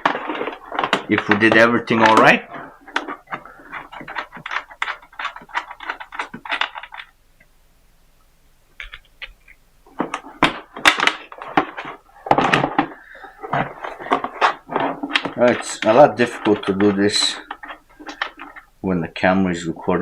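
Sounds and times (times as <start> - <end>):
battery box thumps and clatter: 0.0 - 7.1, 10.0 - 18.7.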